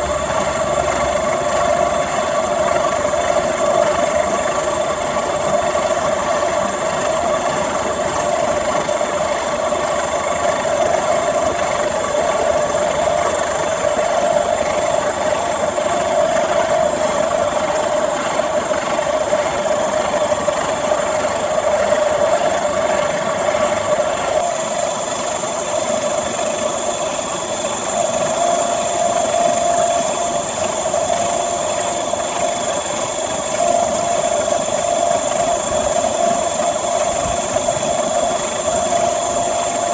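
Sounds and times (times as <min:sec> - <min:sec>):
electric motor humming and whining: 0:10.9 - 0:39.9.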